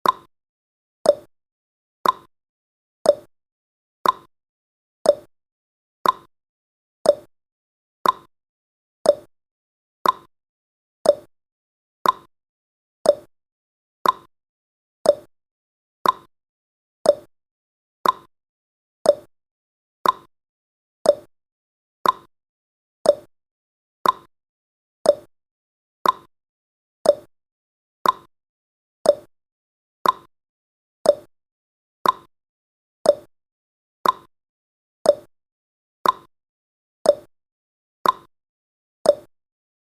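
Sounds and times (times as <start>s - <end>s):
timer ticking: 0.0s - 0.3s, 1.1s - 1.3s, 2.0s - 2.3s, 3.1s - 3.3s, 4.0s - 4.3s, 5.1s - 5.3s, 6.0s - 6.3s, 7.1s - 7.3s, 8.0s - 8.3s, 9.0s - 9.3s, 10.0s - 10.3s, 11.0s - 11.3s, 12.0s - 12.3s, 13.0s - 13.3s, 14.0s - 14.3s, 15.0s - 15.3s, 16.0s - 16.3s, 17.0s - 17.3s, 18.0s - 18.3s, 19.0s - 19.3s, 20.0s - 20.3s, 21.0s - 21.3s, 22.0s - 22.3s, 23.0s - 23.3s, 24.0s - 24.3s, 25.0s - 25.3s, 26.0s - 26.3s, 27.0s - 27.3s, 28.0s - 28.3s, 29.0s - 29.3s, 30.0s - 30.3s, 31.0s - 31.3s, 32.0s - 32.3s, 33.0s - 33.3s, 34.0s - 34.3s, 35.1s - 35.3s, 36.0s - 36.3s, 37.1s - 37.3s, 38.0s - 38.3s, 39.1s - 39.3s.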